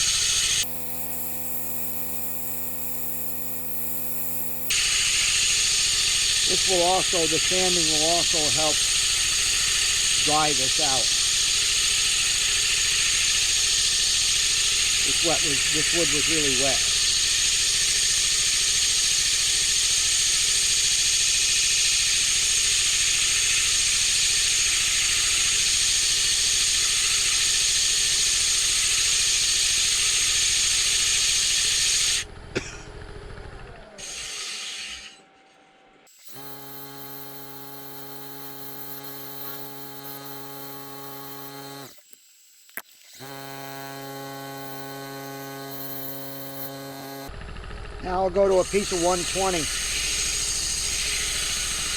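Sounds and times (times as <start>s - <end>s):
lathe motor hum: 0.0s - 35.2s, 36.1s - 51.9s
sandpaper sanding wood on lathe: 6.4s - 19.4s, 36.3s - 42.0s, 43.2s - 47.3s, 48.5s - 51.9s.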